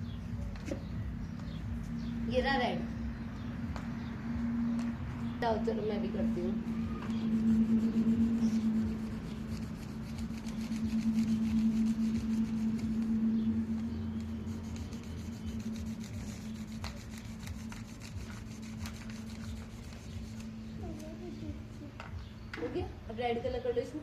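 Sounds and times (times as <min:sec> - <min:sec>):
steady low hum: 0:00.0 - 0:23.6
colouring strokes rubbing on paper: 0:06.0 - 0:21.1.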